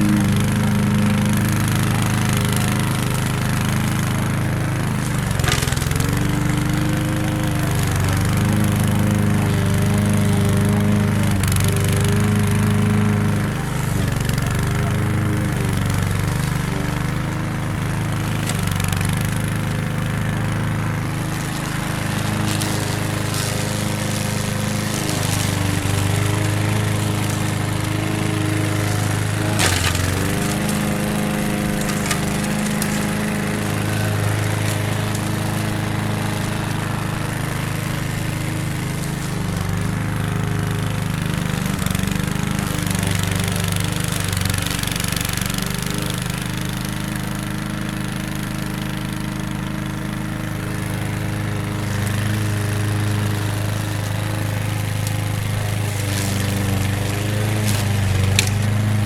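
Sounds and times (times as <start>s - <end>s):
lawn mower engine running: 0.0s - 59.0s.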